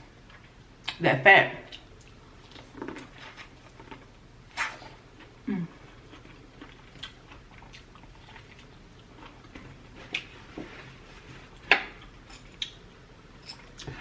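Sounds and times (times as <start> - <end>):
chewing steak: 1.7 - 10.4.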